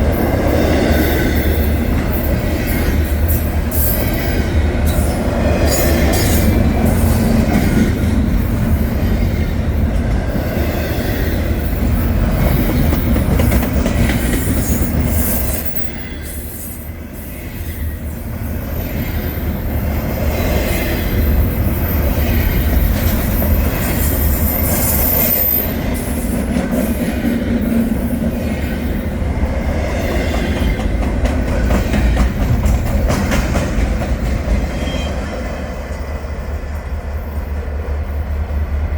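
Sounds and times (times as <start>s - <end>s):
freight train rumbling: 0.0s - 38.9s.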